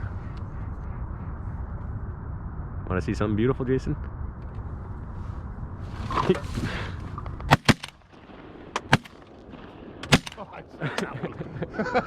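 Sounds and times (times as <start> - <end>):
shotgun shots: 7.5 - 10.6.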